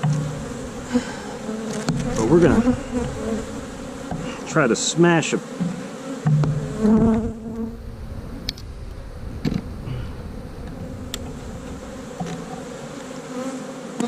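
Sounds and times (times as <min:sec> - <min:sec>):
honey bees humming: 0:00.0 - 0:14.0.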